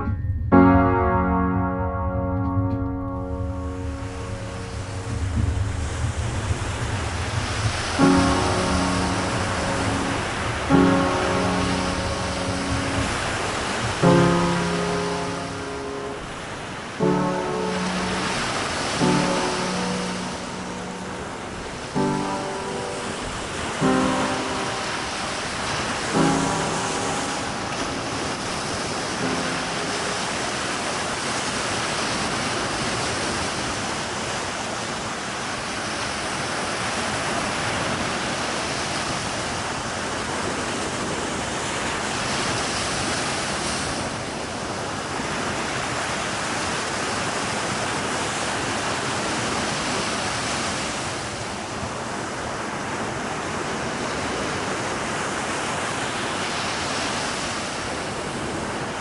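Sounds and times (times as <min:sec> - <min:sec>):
faint musical tone: 0:00.0 - 0:32.2
rushing noise like surf: 0:00.0 - 0:59.0.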